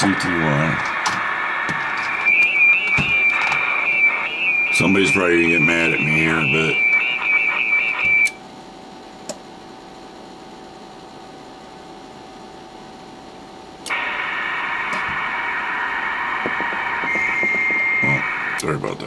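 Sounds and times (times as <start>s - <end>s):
radio band static: 0.0s - 8.3s, 13.9s - 18.8s
warbling radio tone: 0.0s - 8.4s, 13.9s - 18.6s.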